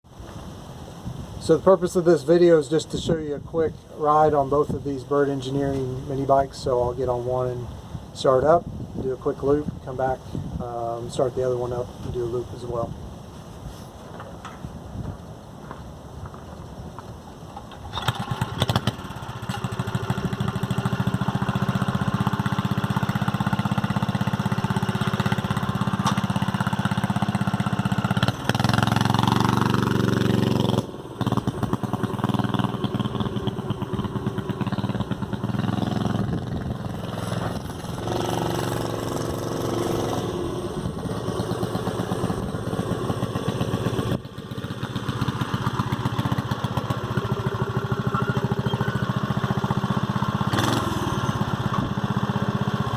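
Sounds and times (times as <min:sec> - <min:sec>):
small engine chugging and revving: 0:17.6 - 0:52.9.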